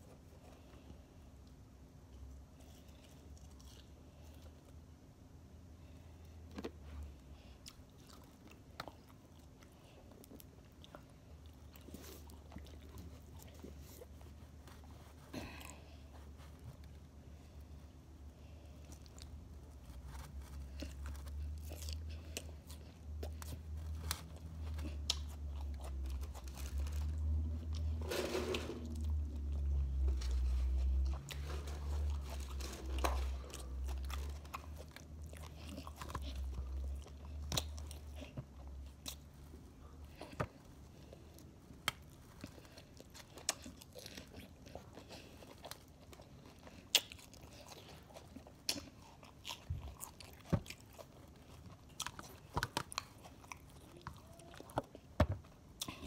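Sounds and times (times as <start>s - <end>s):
chewing crunchy salad: 0.1s - 4.9s, 6.2s - 56.0s.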